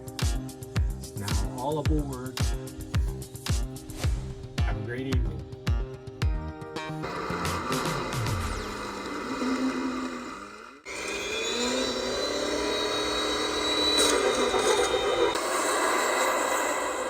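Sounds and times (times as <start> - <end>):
small electric motor whining: 7.0 - 17.0.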